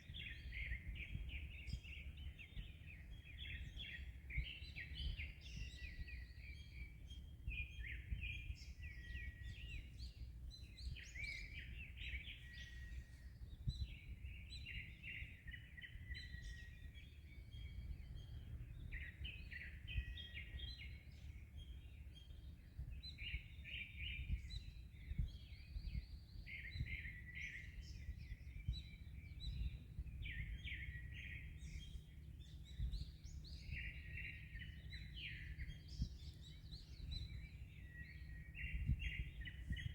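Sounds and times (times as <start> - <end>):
birds chirping and singing: 0.0 - 39.9
wind rumble: 22.6 - 39.9.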